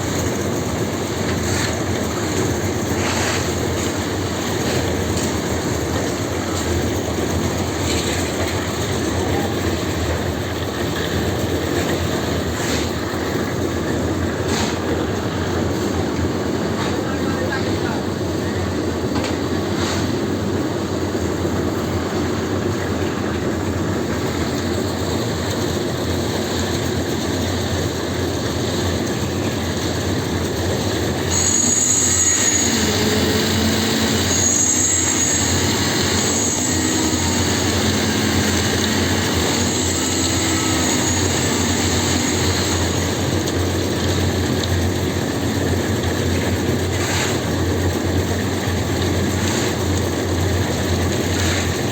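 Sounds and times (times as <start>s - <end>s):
mechanical running noise with clatter: 0.0s - 15.0s, 20.8s - 51.9s
high-pitched squeal: 31.1s - 43.4s.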